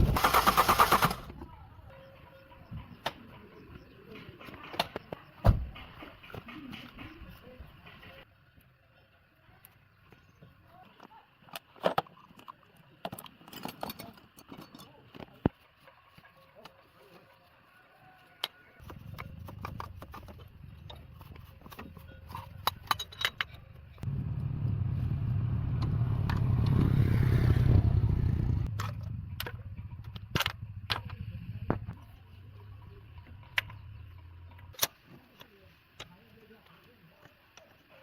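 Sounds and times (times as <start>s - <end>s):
metallic clinks and clatter: 19.0s - 24.0s
low motor hum: 23.6s - 34.7s.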